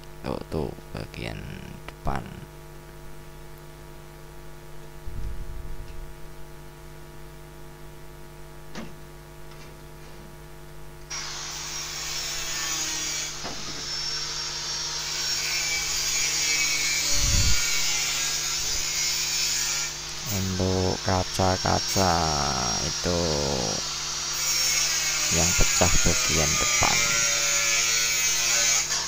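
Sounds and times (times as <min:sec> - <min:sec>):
steady electrical hum: 0:00.0 - 0:29.0
power tool rasping on metal: 0:11.1 - 0:29.0.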